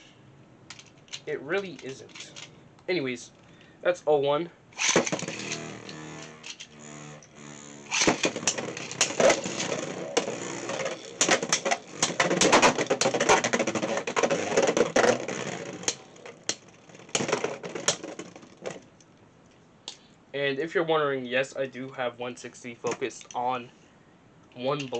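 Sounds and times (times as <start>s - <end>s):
spinning tops clashing in plastic stadium: 4.8s - 18.9s.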